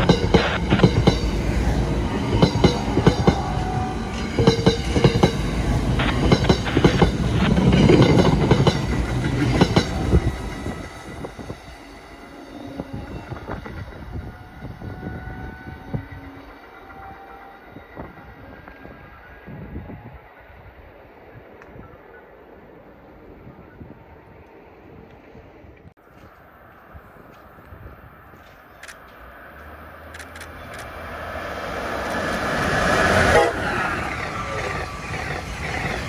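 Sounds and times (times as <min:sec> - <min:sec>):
train wheels clicking and rumbling: 0:00.0 - 0:18.8, 0:25.8 - 0:36.0.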